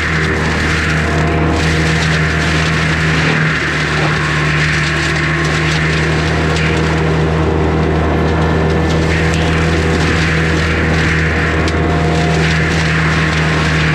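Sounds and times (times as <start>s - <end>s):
mulcher grinding brush and wood: 0.0s - 13.9s
skid steer engine running: 0.0s - 13.9s.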